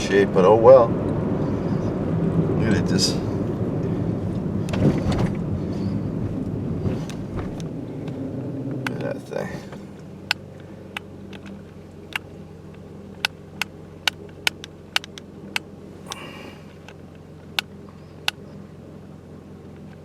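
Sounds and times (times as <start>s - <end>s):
low mechanical hum: 0.0s - 20.0s
sharp clicks: 10.2s - 16.2s.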